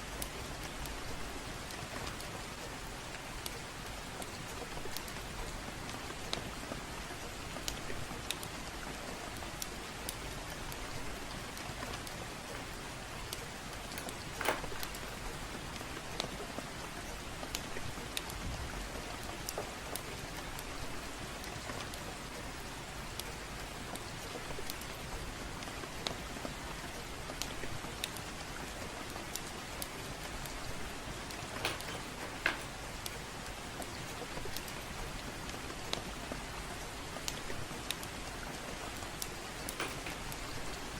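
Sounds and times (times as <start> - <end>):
gentle rain hissing: 0.0 - 40.9
fire crackling and popping: 9.6 - 20.8.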